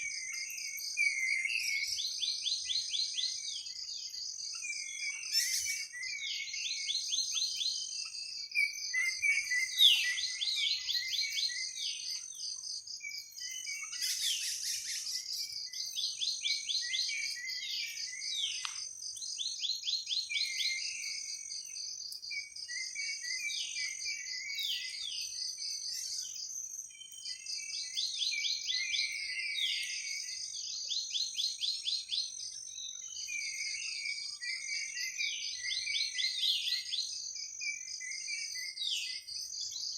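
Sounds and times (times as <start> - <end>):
high-pitched insect trill: 0.0 - 39.9.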